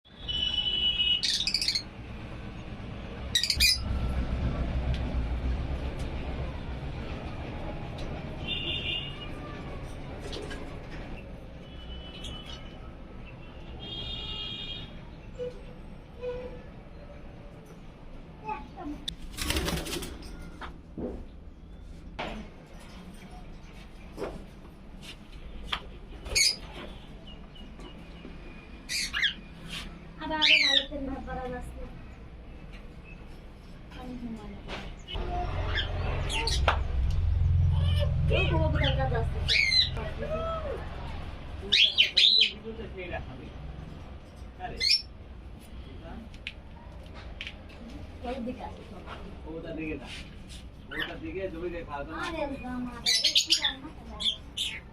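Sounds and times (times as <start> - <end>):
lovebirds chirping shrilly: 0.3 - 1.9, 3.4 - 3.9, 28.9 - 29.5, 38.8 - 40.0, 53.0 - 54.9
lovebirds chirping: 1.1 - 1.9, 3.4 - 3.9.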